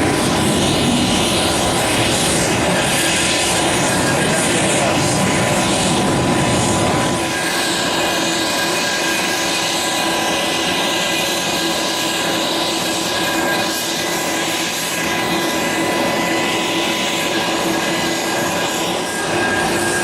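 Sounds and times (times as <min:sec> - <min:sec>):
aircraft turbine engines rushing: 0:00.0 - 0:20.0
high whining tones: 0:17.2 - 0:20.0.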